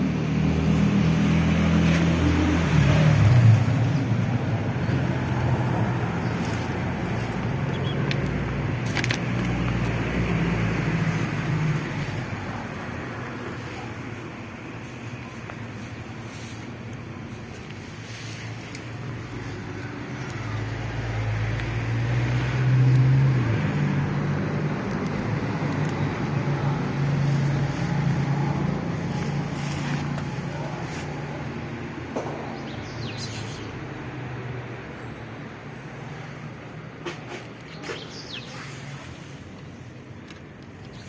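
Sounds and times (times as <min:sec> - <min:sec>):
vehicle engine passing by: 0:00.0 - 0:13.9, 0:18.1 - 0:34.8.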